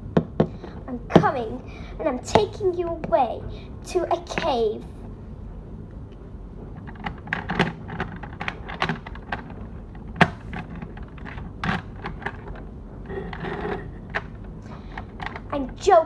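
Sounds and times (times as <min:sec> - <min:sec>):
small objects clicking and tapping: 0:06.8 - 0:15.5.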